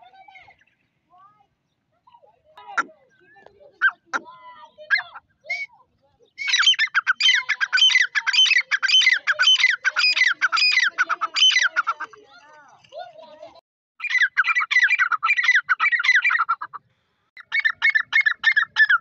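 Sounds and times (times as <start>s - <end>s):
francolin shrill calling: 4.8s - 12.1s, 14.0s - 16.7s, 17.4s - 19.0s.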